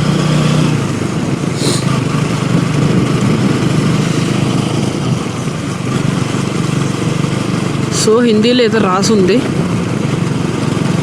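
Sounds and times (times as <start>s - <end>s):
motorcycle engine running: 0.0s - 11.0s
brief high hiss: 1.6s - 1.9s.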